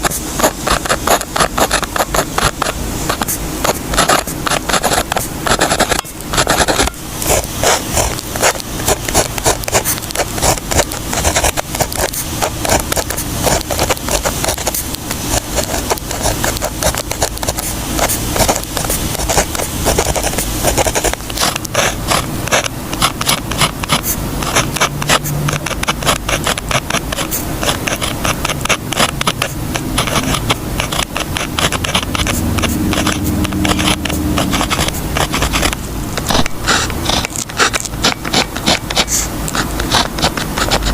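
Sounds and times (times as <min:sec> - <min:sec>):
pen scratching on paper: 0:00.0 - 0:40.9.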